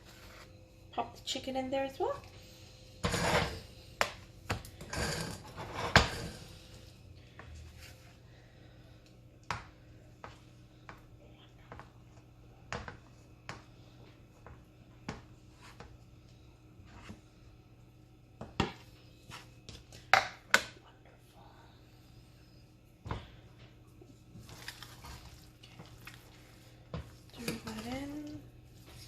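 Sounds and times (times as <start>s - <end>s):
utensil scraping a pan: 3.0s - 3.6s, 4.8s - 6.5s.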